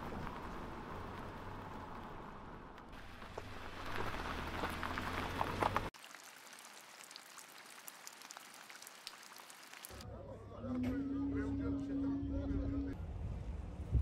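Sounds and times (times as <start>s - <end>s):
car driving on wet street: 0.0s - 6.2s
rain on wet pavement: 0.0s - 10.0s.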